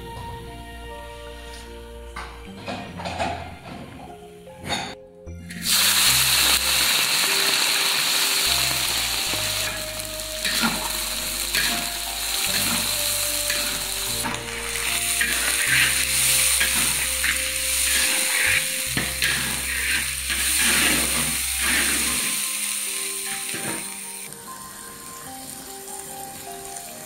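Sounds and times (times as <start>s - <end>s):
shrimp sizzling in hot oil: 5.5s - 27.0s
spatula stirring in a wok: 8.9s - 24.0s.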